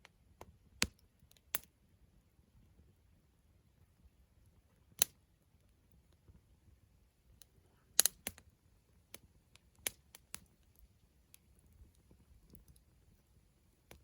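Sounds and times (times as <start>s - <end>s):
firewood crackling and popping: 0.4s - 1.7s, 4.7s - 6.4s, 7.3s - 14.0s.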